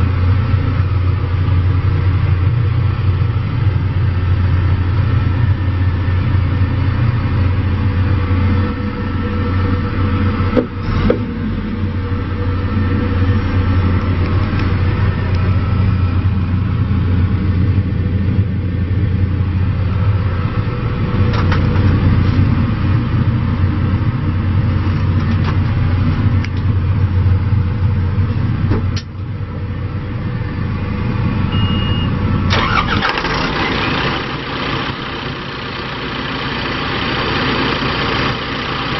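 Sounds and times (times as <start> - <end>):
diesel engine humming: 0.0 - 38.9.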